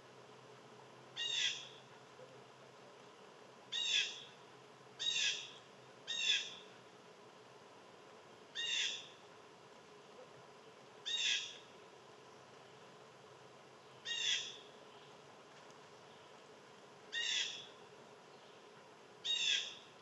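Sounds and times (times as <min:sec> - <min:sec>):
bird calling: 0:08.6 - 0:09.2, 0:11.0 - 0:11.6, 0:14.0 - 0:15.1, 0:17.1 - 0:17.8, 0:19.2 - 0:19.9.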